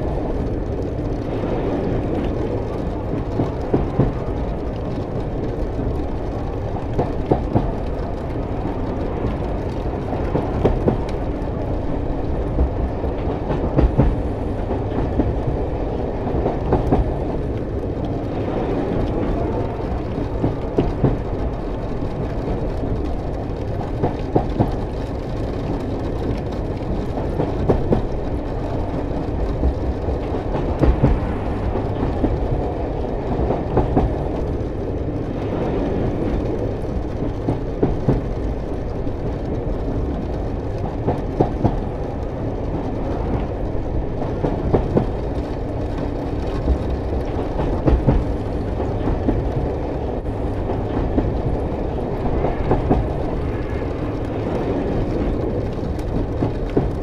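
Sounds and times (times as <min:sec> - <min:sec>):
freight train rumble: 0:00.0 - 0:57.0
train wheels clacking on rails: 0:00.0 - 0:57.0.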